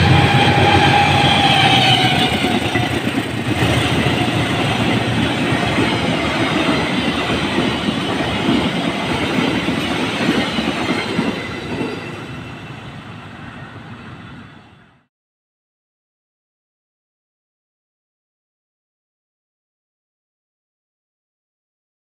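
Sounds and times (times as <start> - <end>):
passenger train passing: 0.0 - 15.1.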